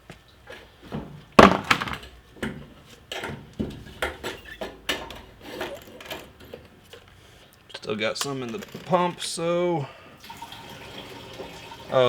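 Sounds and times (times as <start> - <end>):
hard clunks and knocks: 0.9 - 6.7.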